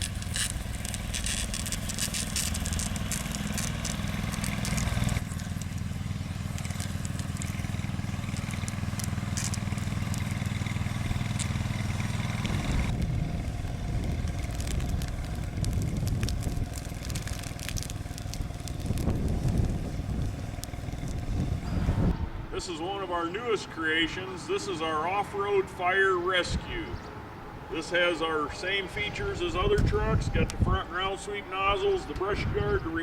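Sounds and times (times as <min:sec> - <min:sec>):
crackling and crunching: 0:00.0 - 0:21.6
vehicle engine running: 0:00.0 - 0:33.0.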